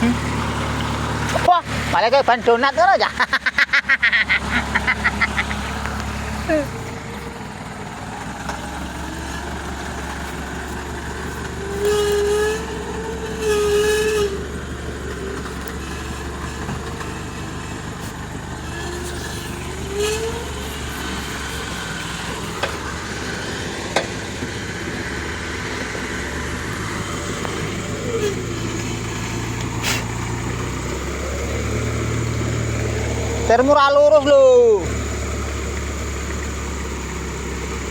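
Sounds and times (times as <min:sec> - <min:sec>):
truck engine running: 0:00.0 - 0:37.9
loud wavering squeals: 0:09.0 - 0:17.3, 0:18.5 - 0:23.8, 0:24.4 - 0:35.0.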